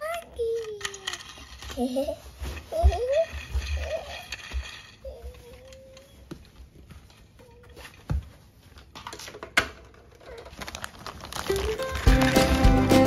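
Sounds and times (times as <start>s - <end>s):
plastic toy parts clicking: 0.0s - 1.9s.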